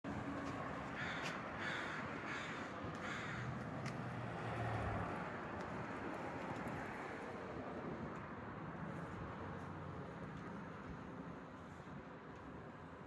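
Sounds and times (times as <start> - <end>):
crow cawing: 0.9 - 3.6.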